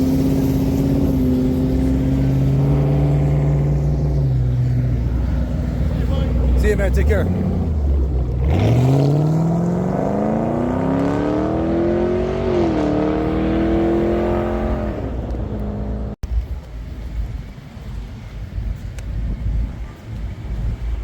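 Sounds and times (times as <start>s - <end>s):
car engine revving: 0.0s - 16.2s.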